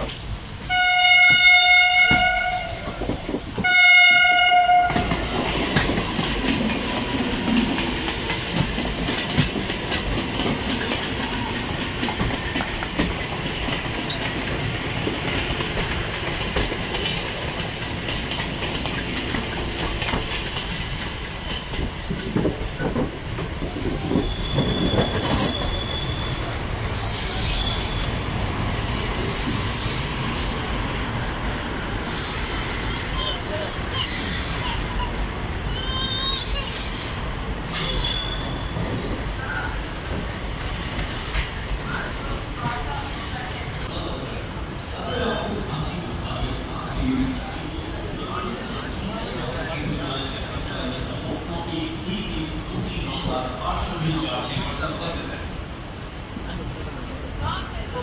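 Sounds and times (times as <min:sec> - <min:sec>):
train rumble and wheel clatter: 0:00.0 - 0:58.0
train horn blasts: 0:00.7 - 0:02.9, 0:03.6 - 0:05.1
brake squeal: 0:24.1 - 0:28.1, 0:37.7 - 0:38.8
hiss burst: 0:27.0 - 0:28.1, 0:32.0 - 0:33.1.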